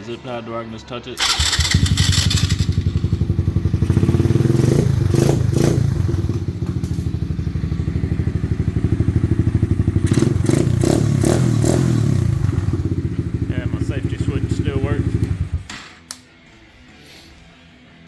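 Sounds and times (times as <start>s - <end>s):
small engine idling: 1.2s - 10.9s.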